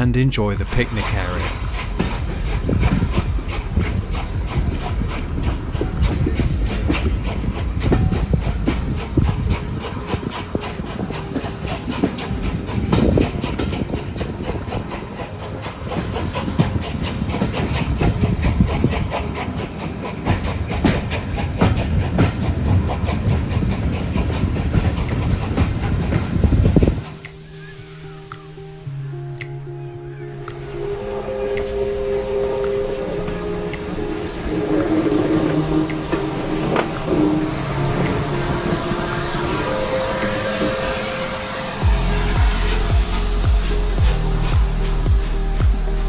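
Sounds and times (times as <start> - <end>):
train rumbling: 0.0 - 27.2, 30.4 - 45.7
wheels clicking over rail joints: 1.5 - 27.2, 32.8 - 41.6.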